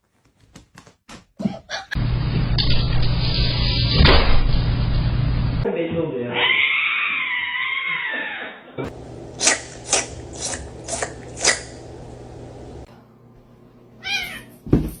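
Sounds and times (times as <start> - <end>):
cat meowing: 14.0 - 14.6.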